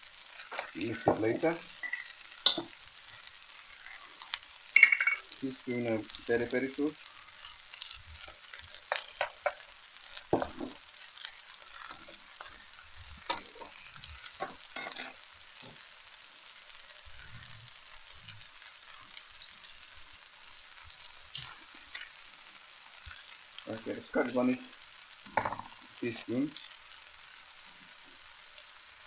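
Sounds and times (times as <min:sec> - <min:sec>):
food sizzling in a wok: 0:00.0 - 0:29.0
utensil scraping a wok: 0:20.7 - 0:22.3.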